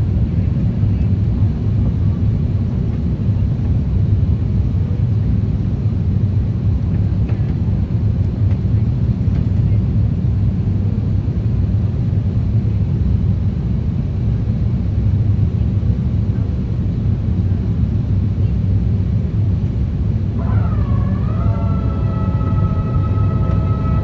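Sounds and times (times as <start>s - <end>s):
airliner cabin rumble: 20.2s - 24.0s.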